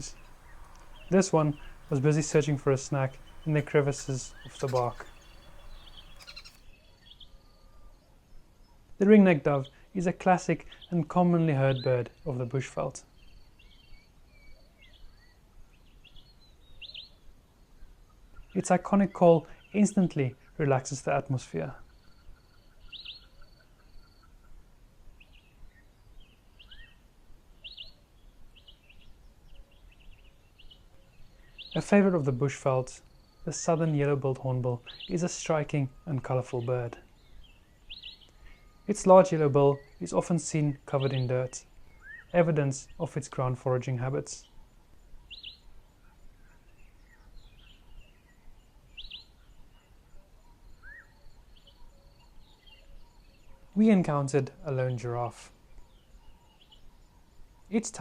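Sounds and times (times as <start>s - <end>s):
high pulsing bird trill: 0.0s - 6.6s
birds chirping and whistling: 0.0s - 6.7s, 34.8s - 43.0s, 45.2s - 45.7s, 46.8s - 53.8s
birds chirping faintly: 0.0s - 58.0s
low steady background hiss: 0.0s - 58.0s.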